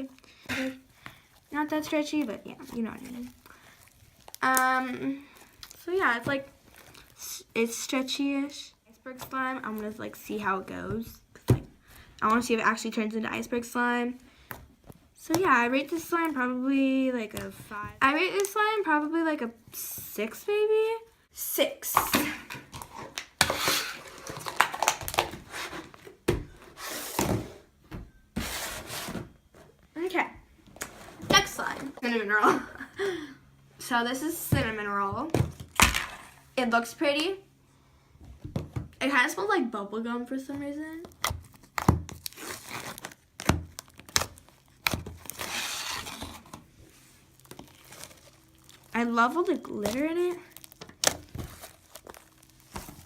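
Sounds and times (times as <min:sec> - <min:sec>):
sticky crackling rustle: 0:47.0 - 0:53.0.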